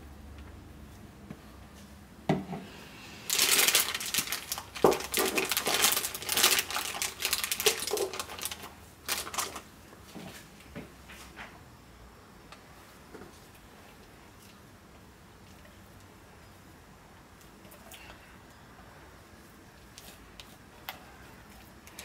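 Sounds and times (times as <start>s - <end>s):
plastic piping bag crinkling: 3.3s - 9.7s.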